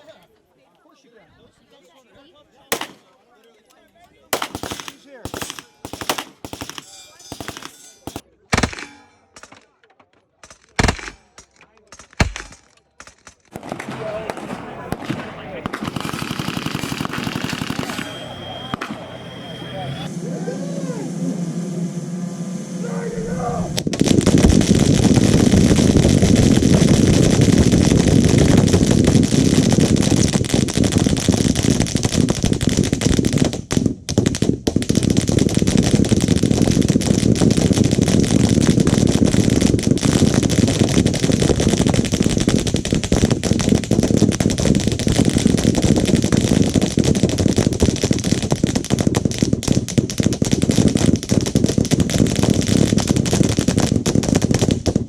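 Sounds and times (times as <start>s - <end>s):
machine gun automatic fire: 4.4s - 9.8s, 10.5s - 20.1s.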